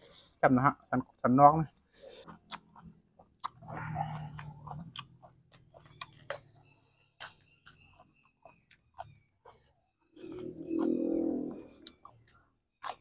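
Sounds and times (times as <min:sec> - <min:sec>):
person chewing food: 0:01.8 - 0:13.0
low hum: 0:10.2 - 0:11.9.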